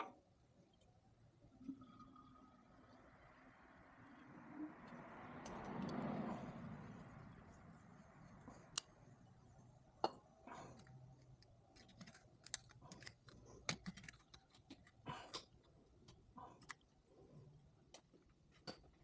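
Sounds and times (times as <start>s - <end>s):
tools being handled: 10.7s - 15.7s.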